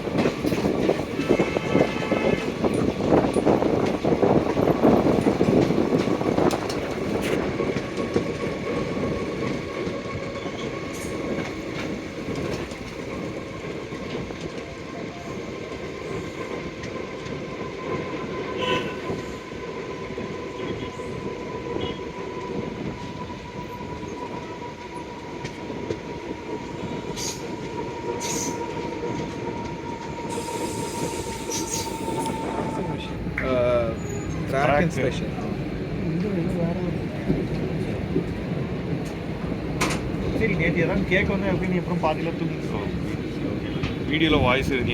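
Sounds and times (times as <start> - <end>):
train rumbling on rails: 0.0 - 44.9
high wheel squeal: 30.0 - 33.2.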